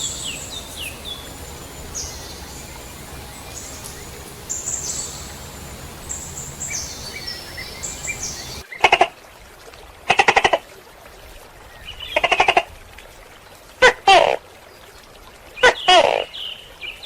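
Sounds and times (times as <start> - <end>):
high-pitched chirping calls: 0.0 - 8.6
outdoor background noise: 0.0 - 17.0.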